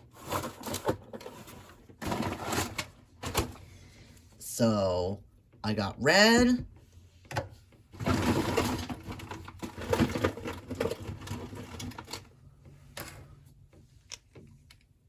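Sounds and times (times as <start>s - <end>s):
colouring supplies rattling: 8.0s - 12.3s.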